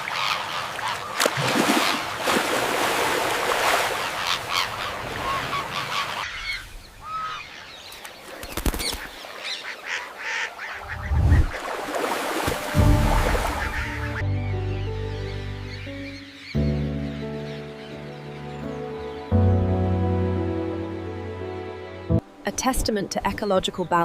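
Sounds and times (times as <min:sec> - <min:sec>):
waterfowl honking and calling: 0:00.0 - 0:02.1, 0:03.8 - 0:08.0, 0:08.8 - 0:19.3.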